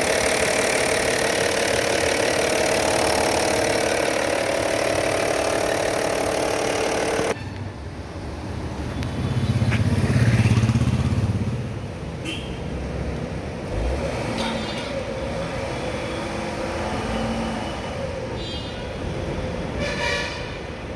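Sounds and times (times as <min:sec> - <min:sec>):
engine running: 0:00.0 - 0:07.4.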